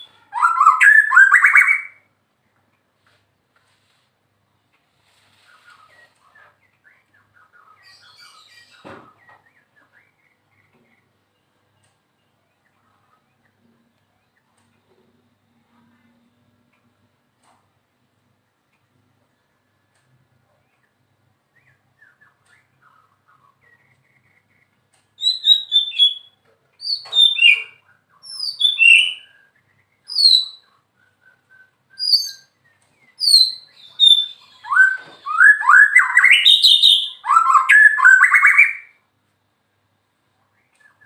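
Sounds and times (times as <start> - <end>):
bird singing whistled phrases: 0.0 - 2.0, 25.2 - 39.0.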